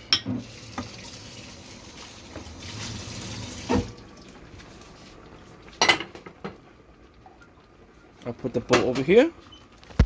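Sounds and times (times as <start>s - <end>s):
tap water running: 0.1s - 4.9s.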